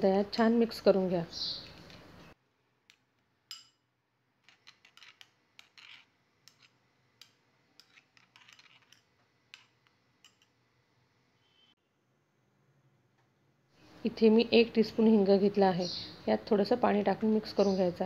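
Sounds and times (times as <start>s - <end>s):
spoon scraping a bowl: 4.4s - 10.6s.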